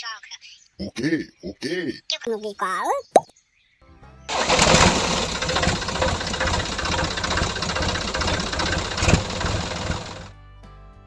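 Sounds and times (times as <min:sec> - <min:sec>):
small engine knocking: 0:04.3 - 0:10.3.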